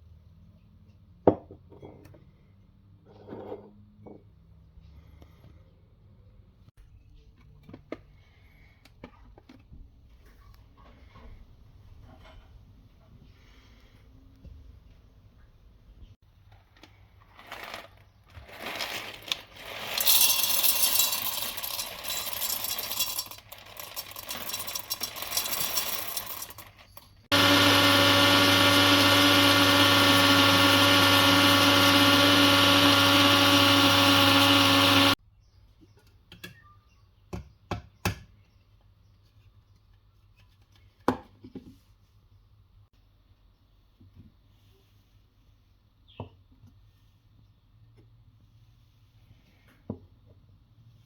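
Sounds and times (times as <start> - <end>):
rattling and clattering: 18.4 - 27.2
coffee machine pump buzzing: 19.9 - 26.6, 27.3 - 35.2.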